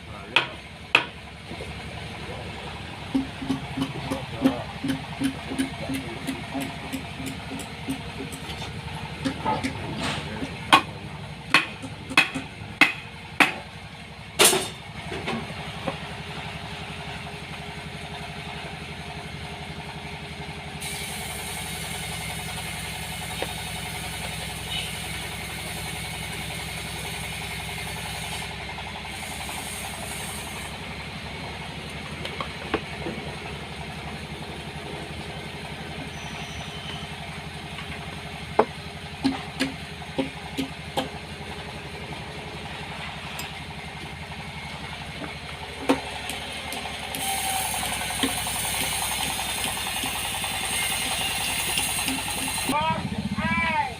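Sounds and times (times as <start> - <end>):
engine running: 0.0 - 53.9
hiss: 20.8 - 30.7, 47.2 - 52.7.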